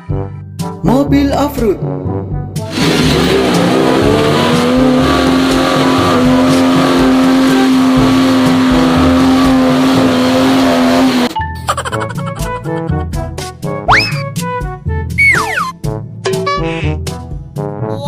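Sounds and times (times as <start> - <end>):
car engine revving: 2.6 - 11.4.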